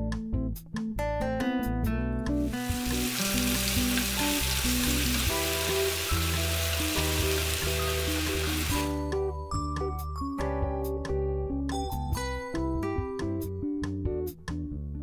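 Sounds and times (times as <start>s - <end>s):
guitar music: 1.0s - 9.4s
onion sizzling in hot oil: 2.4s - 9.0s.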